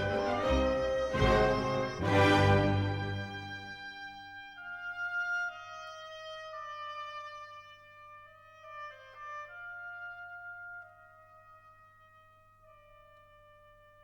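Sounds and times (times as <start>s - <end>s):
wind instrument melody: 0.0s - 6.7s.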